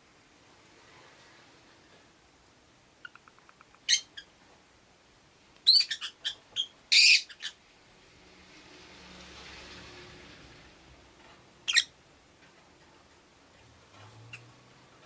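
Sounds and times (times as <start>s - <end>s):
lovebirds chirping and screeching: 3.0s - 4.3s, 5.6s - 7.6s, 11.6s - 11.9s.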